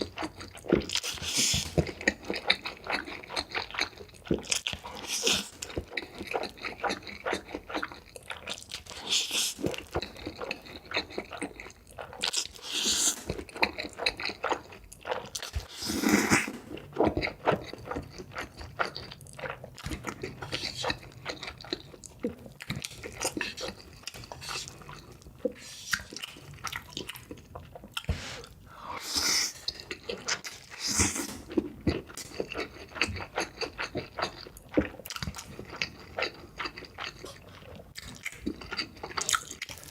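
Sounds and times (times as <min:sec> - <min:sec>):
wet chewing: 0:00.0 - 0:28.6, 0:29.5 - 0:39.9
slurping noodles: 0:15.1 - 0:16.9.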